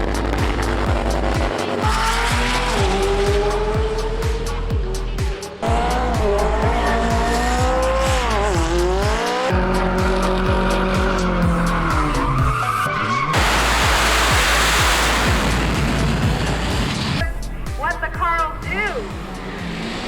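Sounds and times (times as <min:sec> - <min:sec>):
music with steady beat: 0:00.0 - 0:12.5, 0:13.4 - 0:20.0
car engine revving: 0:00.0 - 0:12.6, 0:13.3 - 0:17.2, 0:18.8 - 0:20.0
tire squeal: 0:05.9 - 0:15.2
loud hissing rush: 0:13.4 - 0:17.3.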